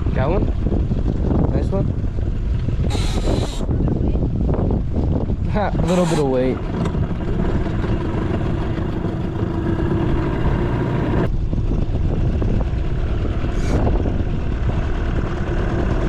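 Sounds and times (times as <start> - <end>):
wind buffeting microphone: 0.0 - 16.0
motor hum: 5.8 - 16.0.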